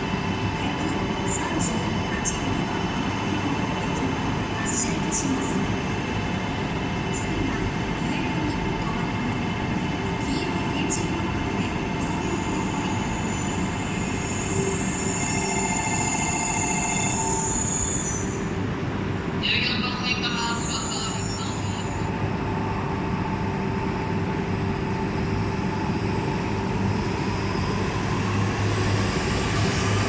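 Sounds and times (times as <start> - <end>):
electric train running: 11.7 - 18.6
high thin wheel squeal: 13.2 - 18.4.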